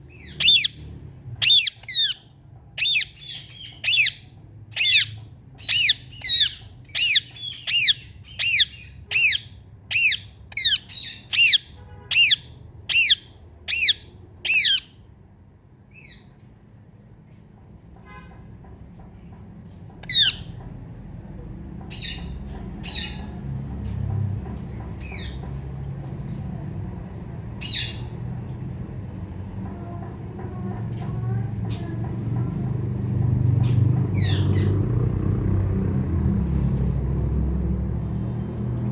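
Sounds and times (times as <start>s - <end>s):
parrot chirping squawks: 0.1s - 0.8s, 1.4s - 15.0s, 20.0s - 20.5s, 34.2s - 34.8s.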